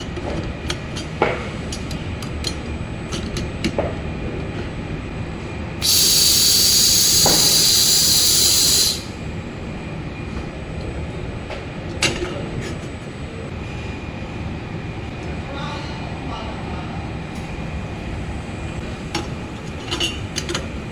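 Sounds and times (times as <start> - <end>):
loud hiss: 5.8 - 9.2.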